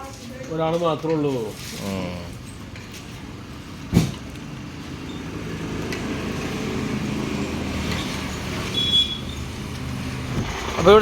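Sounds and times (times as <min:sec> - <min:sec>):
truck engine running: 0:03.1 - 0:11.0
sharp thump: 0:03.9 - 0:04.2.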